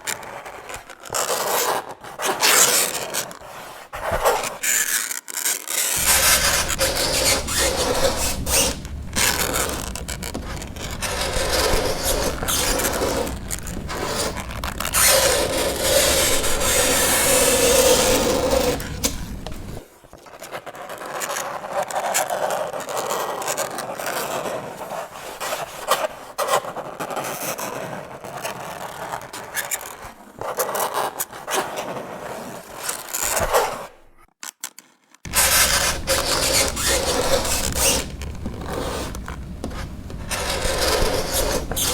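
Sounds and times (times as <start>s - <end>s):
fingernails scraping chalkboard: 6.0s - 19.9s, 35.3s - 41.9s.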